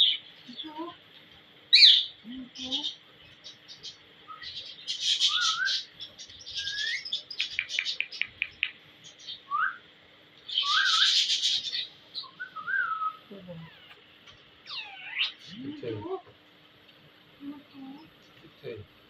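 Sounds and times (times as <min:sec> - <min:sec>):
parakeet screeching: 0:04.7 - 0:05.9, 0:10.5 - 0:12.9, 0:14.6 - 0:15.6
parakeet whistles: 0:05.1 - 0:05.9, 0:06.6 - 0:07.1, 0:10.5 - 0:11.6, 0:12.2 - 0:13.2
parakeet clicks: 0:07.3 - 0:08.8.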